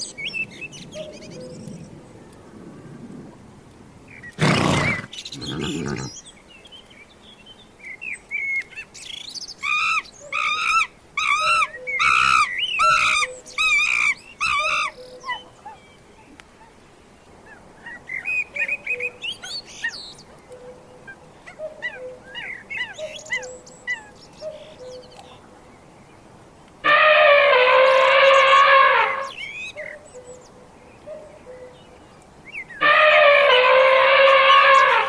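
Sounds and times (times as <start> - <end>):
bird calling: 4.1 - 6.4, 8.3 - 16.8, 17.4 - 25.5, 26.8 - 35.0.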